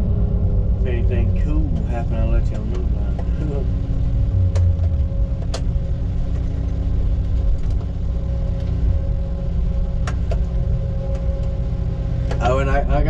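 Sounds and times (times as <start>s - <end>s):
diesel engine droning: 0.0s - 13.0s
steady hum: 0.0s - 13.0s.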